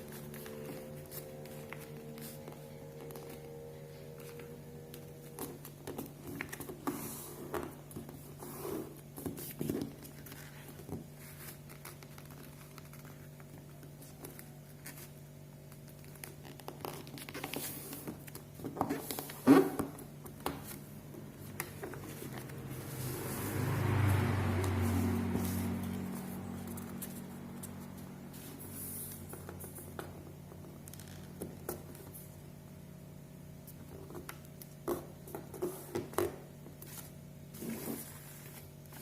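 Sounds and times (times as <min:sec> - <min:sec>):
paper rustling and crinkling: 0:00.0 - 0:23.2
steady low hum: 0:00.0 - 0:39.0.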